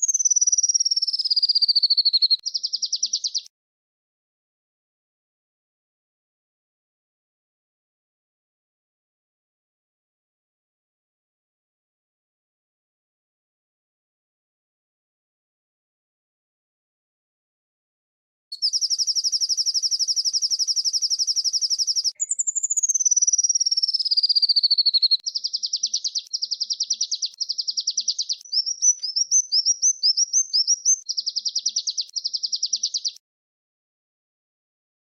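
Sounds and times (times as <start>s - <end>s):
songbirds trilling: 0.0s - 3.5s, 18.6s - 33.2s
rising bird chips: 18.6s - 33.2s.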